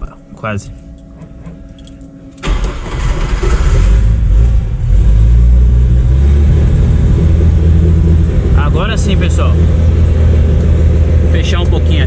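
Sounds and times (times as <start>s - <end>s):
car engine cold start: 2.4s - 4.8s.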